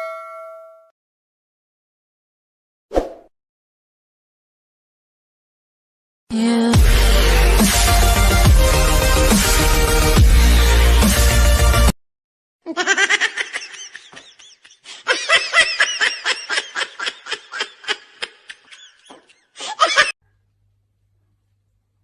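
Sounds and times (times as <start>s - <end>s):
high-pitched laughing: 12.7s - 20.2s.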